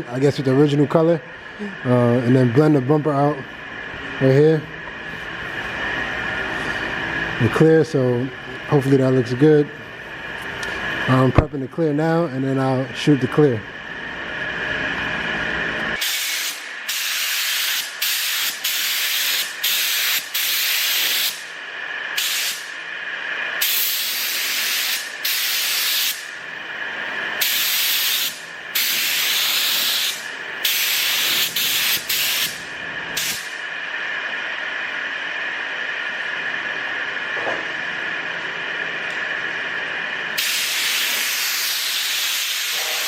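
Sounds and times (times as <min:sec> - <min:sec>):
spray gun air hissing: 0:16.0 - 0:22.8, 0:23.6 - 0:26.4, 0:27.4 - 0:32.6, 0:33.2 - 0:33.6, 0:40.3 - 0:43.0.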